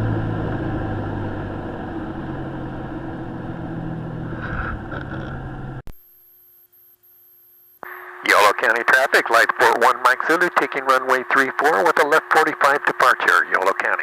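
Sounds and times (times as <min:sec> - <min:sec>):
airplane engine and propeller running: 0:00.0 - 0:05.8, 0:07.8 - 0:14.0
faint steady hum: 0:05.2 - 0:14.0.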